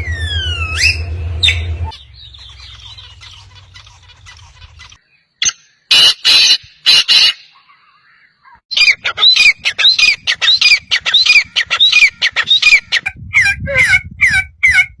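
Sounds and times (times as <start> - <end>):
low rumble: 0.0 - 4.9
bird calling: 0.0 - 14.9.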